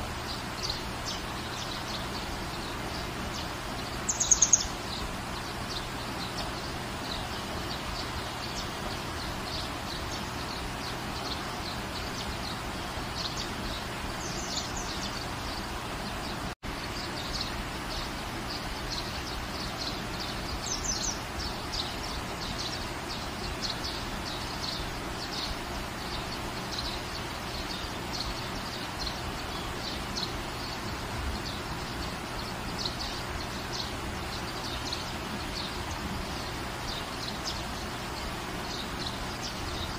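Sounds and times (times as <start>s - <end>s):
steady rain hissing: 0.0s - 39.9s
high bird chirps: 0.2s - 15.6s.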